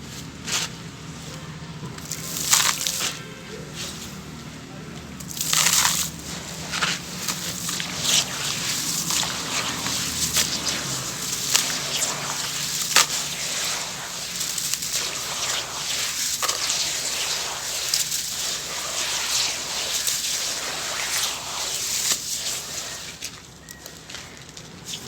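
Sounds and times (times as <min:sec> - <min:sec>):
sand-cement crumbling in water: 0:01.9 - 0:03.2, 0:05.2 - 0:23.4.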